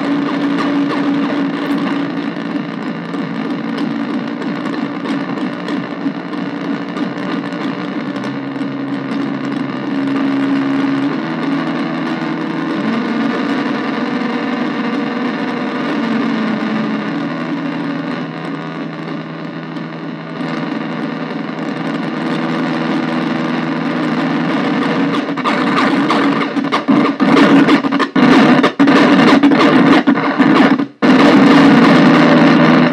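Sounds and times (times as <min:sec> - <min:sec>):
distorted synthesizer drone: 0:00.0 - 0:32.9.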